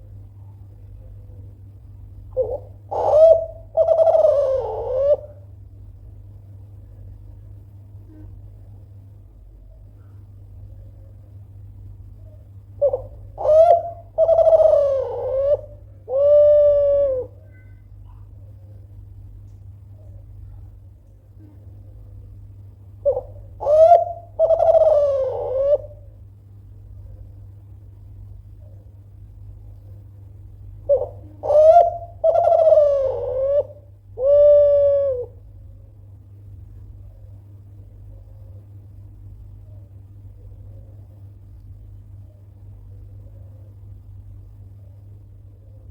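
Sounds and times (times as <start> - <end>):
dove cooing: 2.3 - 5.5, 12.8 - 17.7, 23.0 - 26.2, 30.8 - 35.7.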